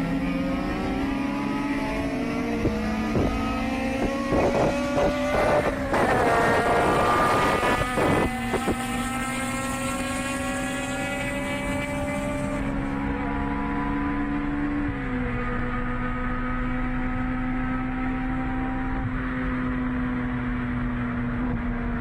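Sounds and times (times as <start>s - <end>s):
car engine revving: 0.0s - 22.0s
exhaust crackles and pops: 4.0s - 9.0s.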